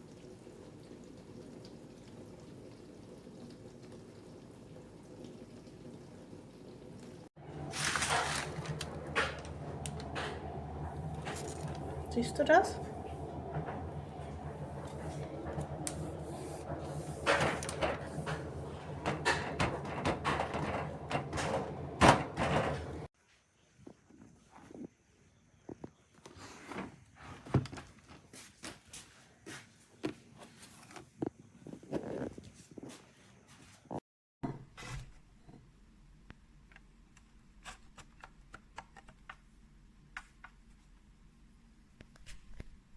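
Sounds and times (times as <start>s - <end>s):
steady low hum: 7.4s - 23.1s
knocks and clatters: 13.0s - 23.1s.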